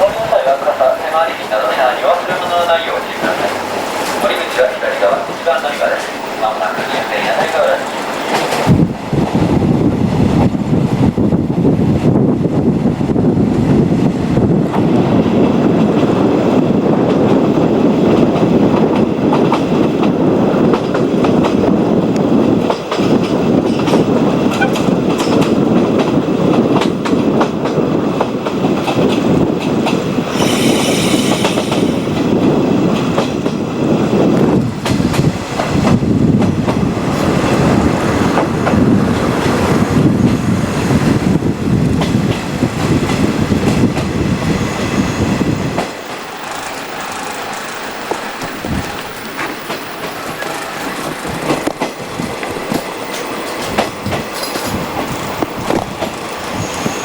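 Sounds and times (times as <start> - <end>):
wheels clacking over rail joints: 0.0 - 8.8, 14.7 - 33.6, 42.0 - 57.0
train rumble: 0.0 - 57.0
brief high hiss: 30.3 - 32.2.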